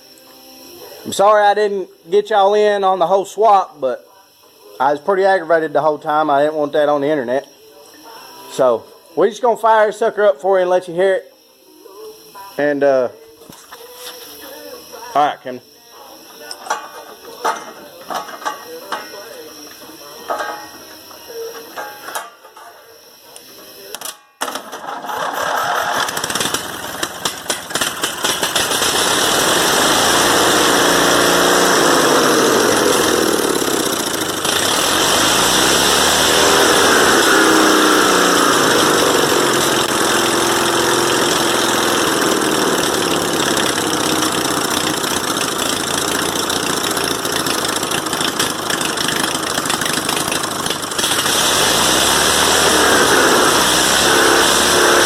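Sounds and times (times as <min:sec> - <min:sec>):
mower engine cranking and sputtering: 0:24.0 - 0:55.0.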